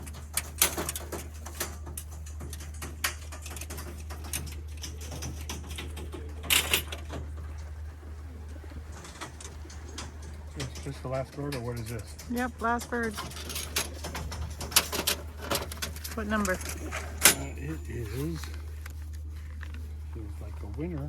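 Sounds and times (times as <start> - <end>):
pigeons cooing: 0.0 - 17.6
wings clattering and fluttering: 0.0 - 20.9
steady low hum: 0.0 - 21.0.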